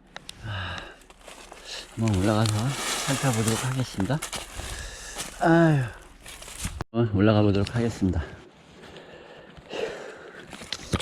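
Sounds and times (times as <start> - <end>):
twigs snapping: 0.1 - 6.8
footsteps rustling on slope: 0.7 - 6.8.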